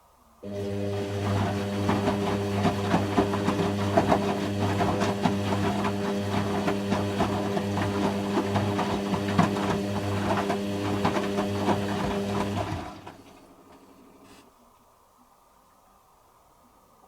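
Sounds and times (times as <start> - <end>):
washing machine motor humming: 0.4 - 14.3
washing machine drum rattling: 1.1 - 13.2.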